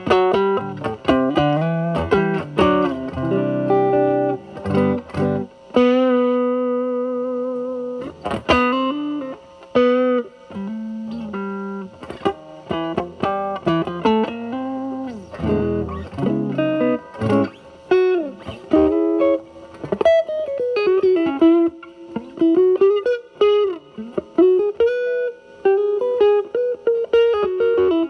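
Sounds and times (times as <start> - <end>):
fuzz electric guitar lead: 0.0 - 28.0.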